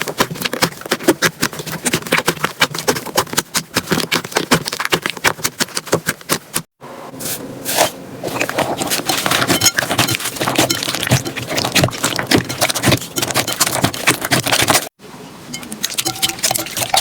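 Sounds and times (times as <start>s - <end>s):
hands squishing slime: 0.0s - 6.6s, 8.2s - 14.9s.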